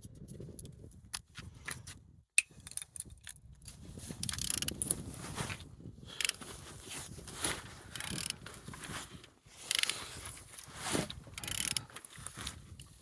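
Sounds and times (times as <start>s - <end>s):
mechanical clicks: 4.2s - 4.9s, 8.0s - 8.3s, 9.7s - 9.9s, 11.4s - 11.8s
diesel engine cranking: 11.3s - 12.0s.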